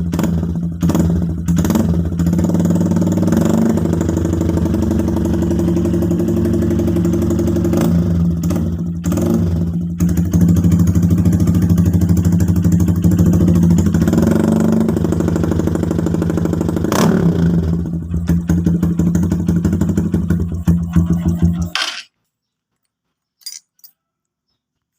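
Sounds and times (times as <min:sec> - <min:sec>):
motorcycle engine idling: 0:00.0 - 0:21.8
motorcycle throttle blips: 0:18.0 - 0:21.8.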